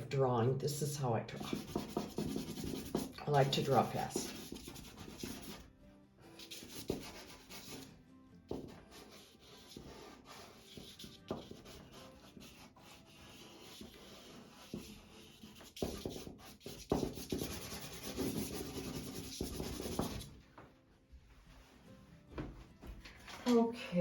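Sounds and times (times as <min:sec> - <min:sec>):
charcoal scratching on paper: 0:01.3 - 0:05.7, 0:06.4 - 0:07.9, 0:08.5 - 0:20.3.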